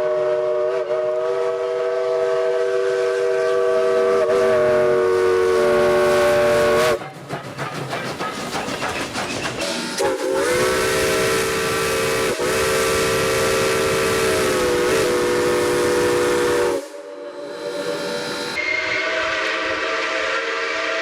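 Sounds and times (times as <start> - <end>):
steam locomotive chime whistle: 0.0 - 7.9, 9.6 - 21.0
steam hissing: 0.0 - 21.0.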